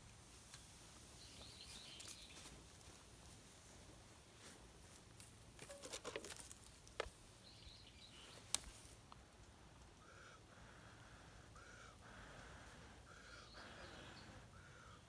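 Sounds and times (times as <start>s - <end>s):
light clicks and scrapes: 5.1s - 7.2s.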